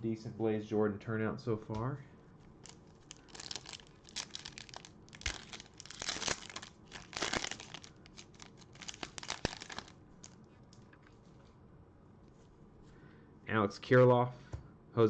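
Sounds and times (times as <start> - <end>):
wrapper tearing and crinkling: 2.6 - 10.4.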